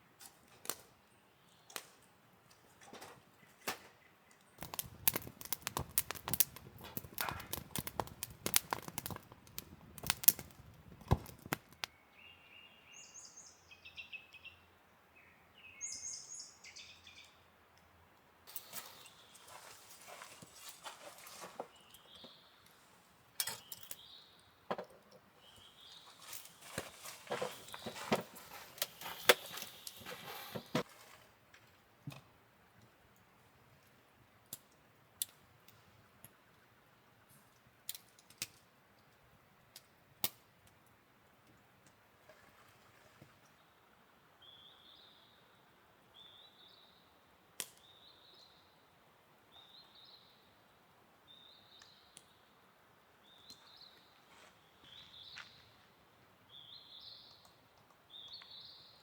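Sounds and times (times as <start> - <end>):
sharp clicks and taps: 4.6 - 11.9
bird chirping: 10.0 - 17.4.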